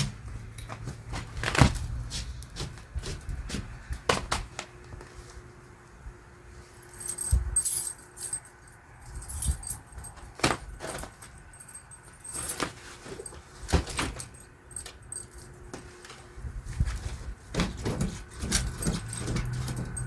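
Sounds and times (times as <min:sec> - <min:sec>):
keys jingling: 0:06.8 - 0:15.7, 0:18.3 - 0:20.0.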